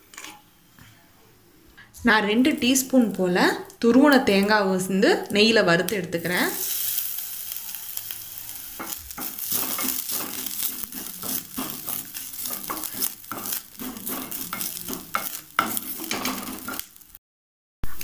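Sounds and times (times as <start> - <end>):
coconut sizzling in hot fat: 2.5 - 17.2
wooden spatula scraping pan: 8.8 - 16.9.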